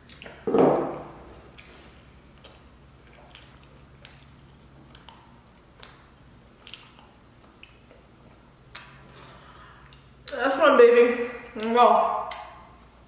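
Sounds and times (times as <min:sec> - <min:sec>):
wet mouth clicks chewing: 0:00.0 - 0:00.4, 0:01.5 - 0:09.0, 0:09.8 - 0:10.4
low steady hum: 0:00.0 - 0:13.0.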